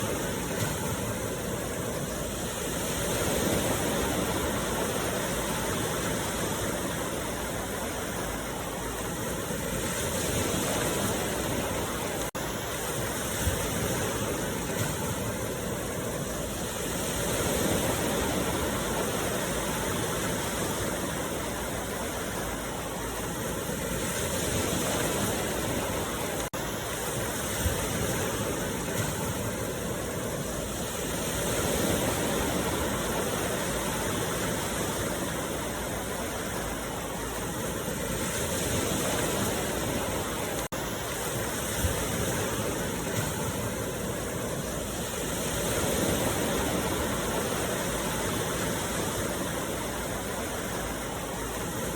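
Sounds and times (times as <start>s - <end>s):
ocean waves breaking: 0.0s - 51.9s.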